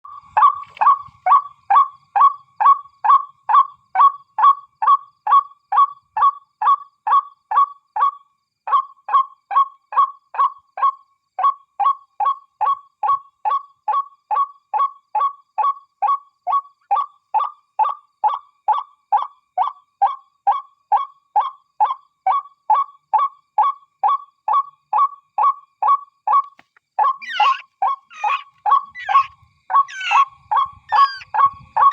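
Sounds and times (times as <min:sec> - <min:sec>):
bird calling falling note: 0:26.6 - 0:29.3, 0:29.9 - 0:30.2, 0:30.9 - 0:31.2.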